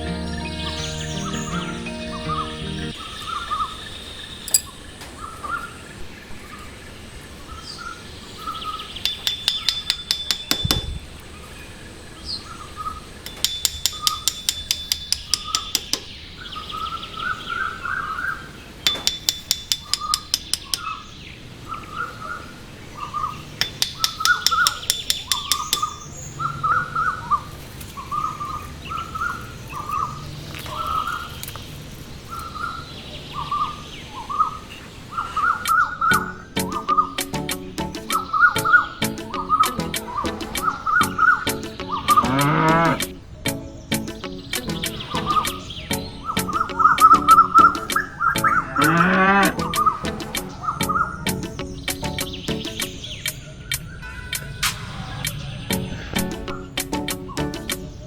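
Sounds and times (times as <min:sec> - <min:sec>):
birds chirping: 0:00.0 - 0:58.0
fast even bird trill: 0:35.4 - 0:58.0.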